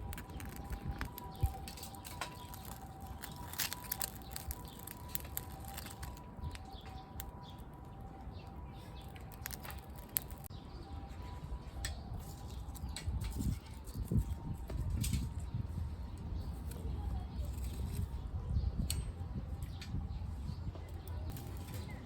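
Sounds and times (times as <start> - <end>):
sharp pops and snaps: 0.0 - 7.7, 9.0 - 10.5
campfire crackling: 0.0 - 10.5.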